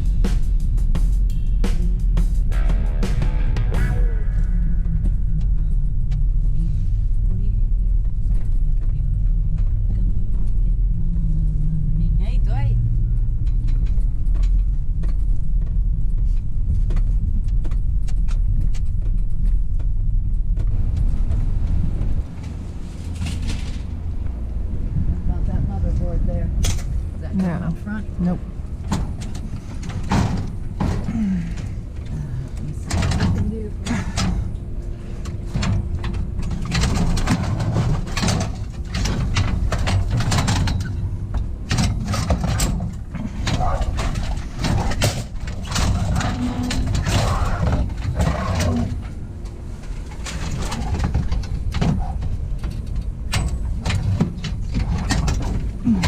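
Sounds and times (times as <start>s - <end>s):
low rumble: 0.0s - 56.0s
vehicle engine idling: 0.0s - 56.0s
faint hum: 1.3s - 56.0s
sharp knocks and clatters: 28.8s - 31.3s, 35.2s - 49.0s.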